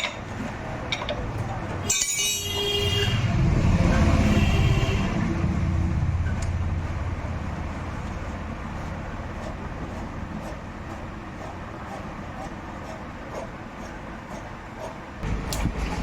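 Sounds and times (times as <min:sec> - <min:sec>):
vehicle engine rumble passing: 0:02.8 - 0:10.4.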